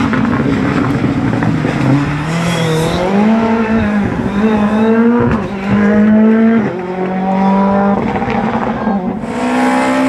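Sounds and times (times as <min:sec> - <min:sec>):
car engine accelerating through gears: 0:00.0 - 0:10.0.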